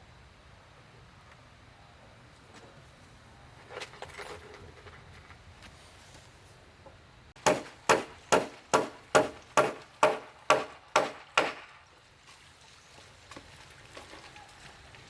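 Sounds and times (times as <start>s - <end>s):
tool striking wood: 7.4s - 11.6s.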